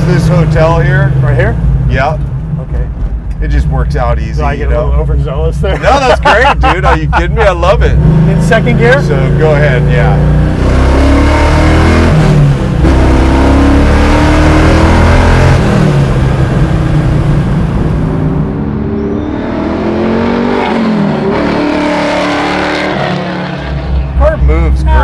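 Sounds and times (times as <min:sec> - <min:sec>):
car engine accelerating hard: 0:05.5 - 0:25.0.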